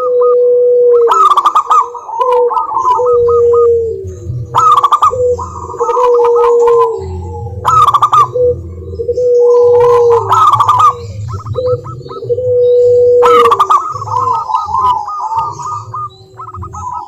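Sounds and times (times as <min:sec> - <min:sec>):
doves cooing: 0:00.0 - 0:17.0.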